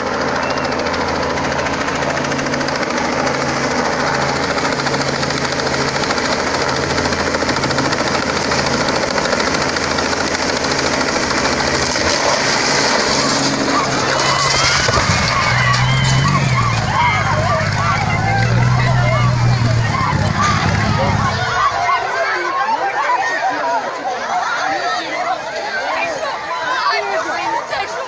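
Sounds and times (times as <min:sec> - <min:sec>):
helicopter engine and rotor: 0:00.0 - 0:22.3.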